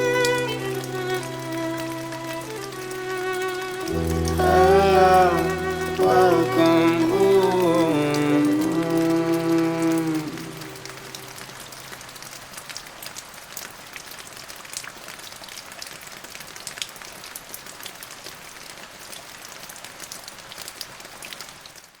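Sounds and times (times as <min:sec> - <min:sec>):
low musical note: 0:00.0 - 0:11.9
rain falling: 0:00.0 - 0:22.0.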